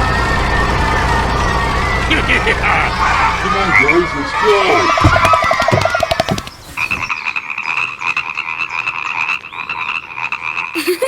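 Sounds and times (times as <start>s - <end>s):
frogs croaking in a trill: 2.2s - 10.8s.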